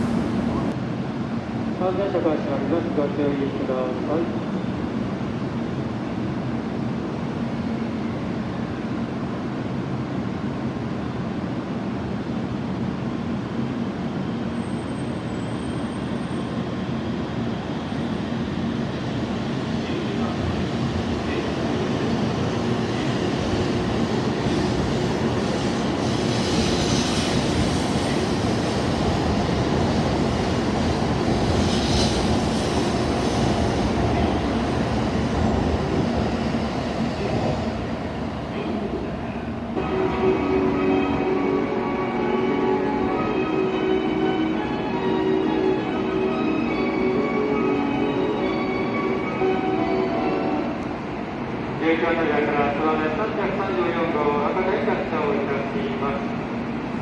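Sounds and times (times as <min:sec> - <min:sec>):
train rolling with low hum: 0:09.2 - 0:41.6.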